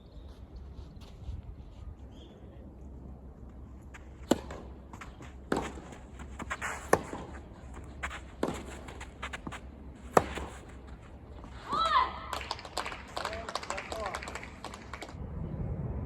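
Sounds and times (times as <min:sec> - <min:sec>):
ball bouncing on court: 0:03.9 - 0:10.6
shoe scuffs on court: 0:03.9 - 0:11.8
tennis ball struck by racket: 0:04.2 - 0:10.9.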